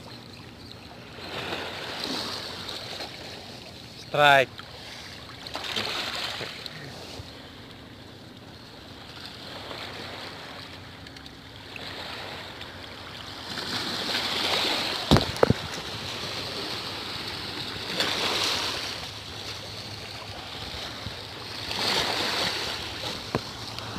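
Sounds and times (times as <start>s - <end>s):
small waves washing in: 1.0s - 8.0s, 8.8s - 23.9s
sharp knocks: 15.1s - 15.7s.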